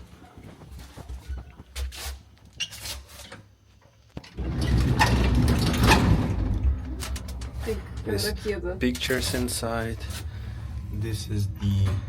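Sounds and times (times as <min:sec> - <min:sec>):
elevator doors clicking and knocking: 0:04.2 - 0:12.0.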